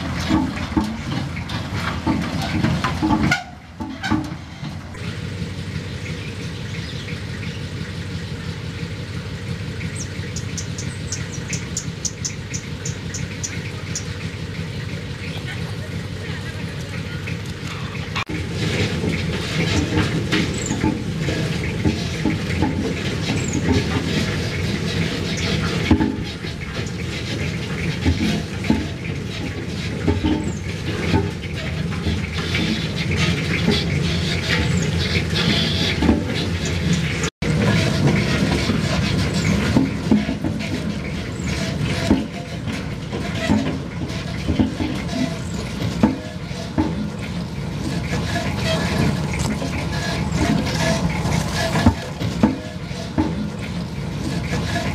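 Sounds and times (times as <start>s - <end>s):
loose rattling and clatter: 0.0s - 5.1s, 17.3s - 54.9s
road roller engine rumbling: 0.0s - 54.9s.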